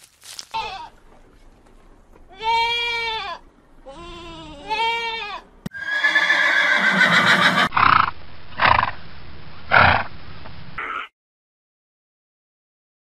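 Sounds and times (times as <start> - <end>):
goat bleating: 0.5 - 1.0, 2.3 - 7.7
horse whinnying: 5.7 - 7.9.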